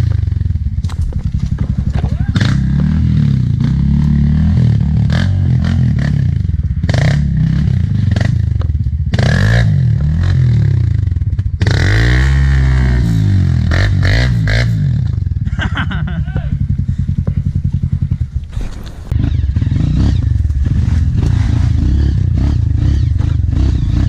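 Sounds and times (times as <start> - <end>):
motorbike engine revving: 0.0 - 24.0
bike clattering over trail: 0.7 - 2.7, 17.1 - 21.8.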